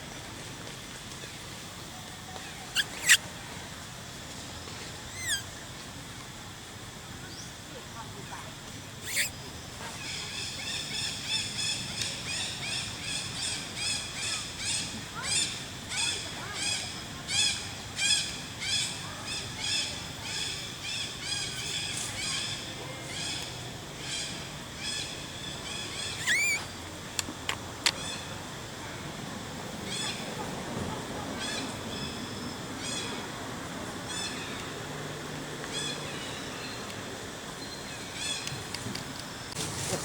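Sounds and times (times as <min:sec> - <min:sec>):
high-pitched animal calls: 0:02.7 - 0:03.2, 0:05.1 - 0:05.5, 0:09.0 - 0:09.3, 0:26.0 - 0:26.7
upward-sweeping animal call: 0:02.8 - 0:03.2, 0:05.2 - 0:05.4.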